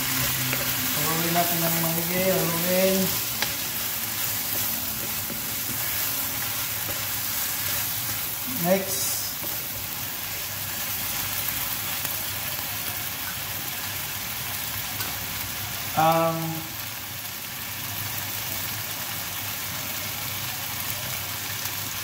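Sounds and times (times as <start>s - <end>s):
stirring in a wok: 0.0s - 15.2s
curry sizzling in a wok: 0.0s - 22.0s.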